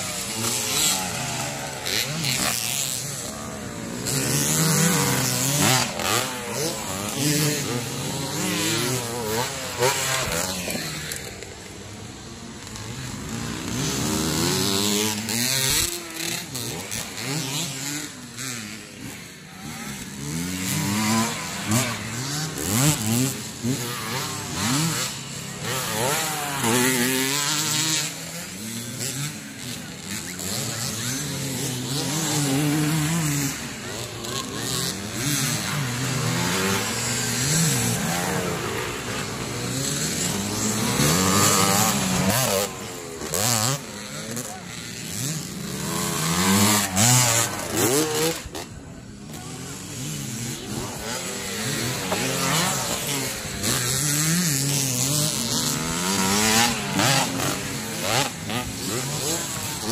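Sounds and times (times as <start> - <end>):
motocross bikes revving: 0.0 - 59.9.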